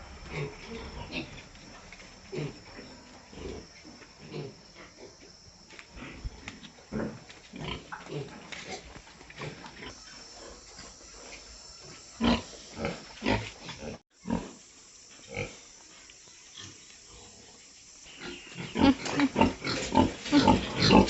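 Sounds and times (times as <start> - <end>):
pigs grunting: 0.0 - 5.2, 5.8 - 14.6, 16.6 - 21.0.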